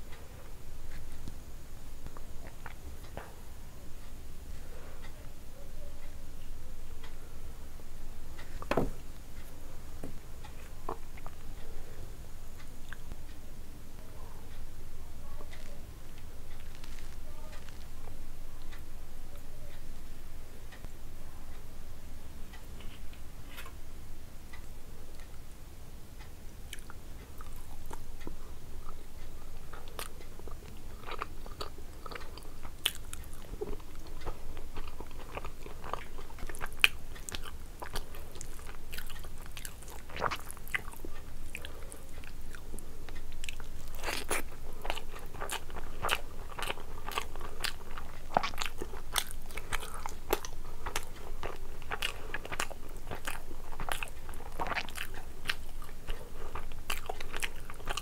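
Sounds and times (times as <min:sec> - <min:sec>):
person chewing food: 0:02.0 - 0:03.4, 0:08.4 - 0:13.4, 0:15.4 - 0:18.8, 0:26.7 - 0:58.0.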